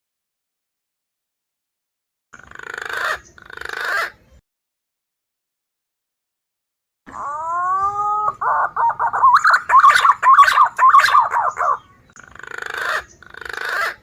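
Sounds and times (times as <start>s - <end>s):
pigeon calls: 2.4s - 4.2s, 7.1s - 14.0s.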